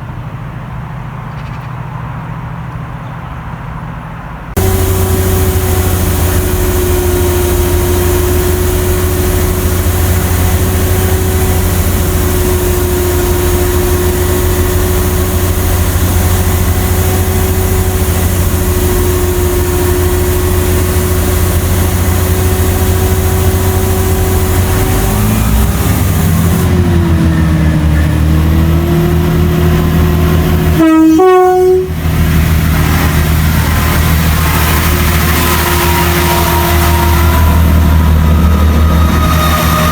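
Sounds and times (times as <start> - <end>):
train engine humming: 0.0 - 39.9
train horn blast: 4.6 - 26.7, 30.1 - 32.2, 32.9 - 39.9.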